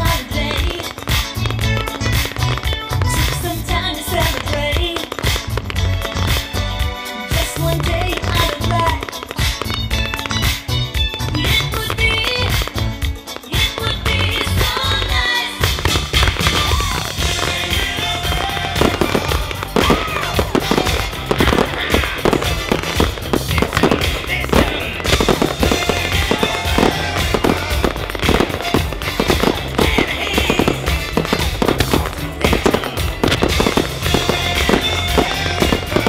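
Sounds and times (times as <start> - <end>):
fireworks bangs and crackles: 0.0 - 36.0
music playing: 0.0 - 36.0.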